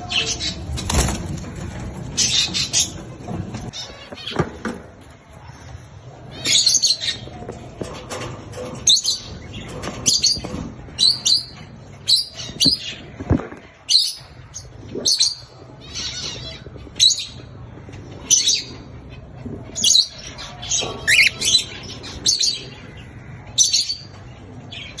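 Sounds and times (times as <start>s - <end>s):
cockatiel harsh chirping calls: 21.0s - 21.4s.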